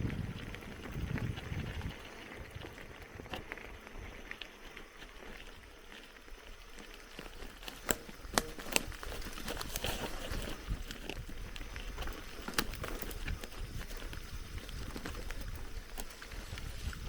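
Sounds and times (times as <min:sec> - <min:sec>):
wind rumble: 0:00.0 - 0:04.4, 0:08.9 - 0:17.0
bike rattling over bumps: 0:00.0 - 0:17.0
bike tyres crunching on gravel: 0:00.0 - 0:17.0.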